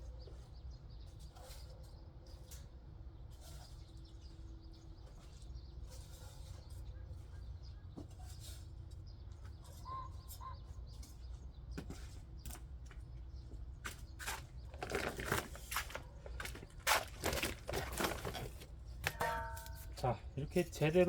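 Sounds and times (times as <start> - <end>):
faint bird chirps: 0.0 - 12.5
rustling and scraping: 0.0 - 20.1.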